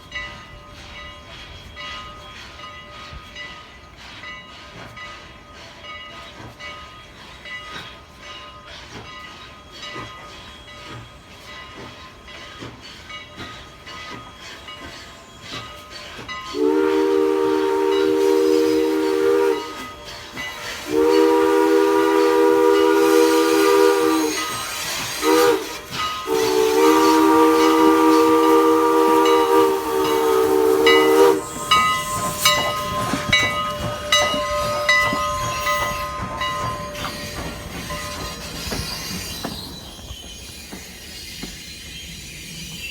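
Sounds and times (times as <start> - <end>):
train running: 0.0 - 42.9
steam whistle blasts: 16.5 - 39.7.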